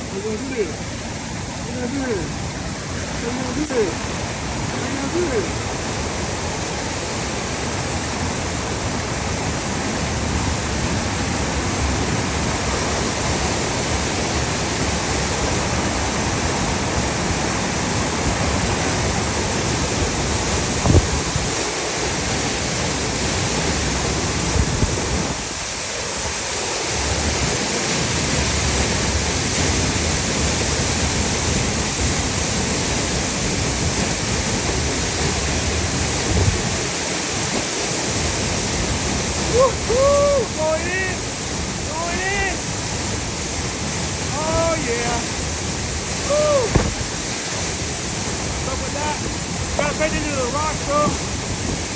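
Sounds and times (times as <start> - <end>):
waterfall roaring: 0.0 - 51.9
brief knocks: 46.7 - 47.2.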